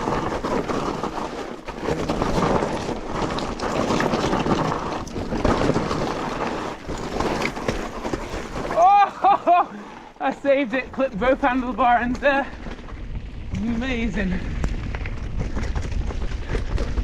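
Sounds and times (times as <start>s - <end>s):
bike knocking and rattling: 0.0s - 9.0s, 10.3s - 17.0s
bike tyres rolling on dirt: 0.0s - 17.0s
wind buffeting microphone: 10.9s - 17.0s.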